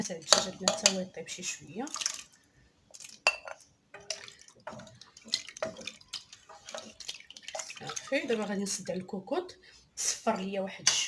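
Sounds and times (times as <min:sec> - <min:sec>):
utensil clinking against pot: 0:00.2 - 0:01.0
wet dripping: 0:04.0 - 0:08.6.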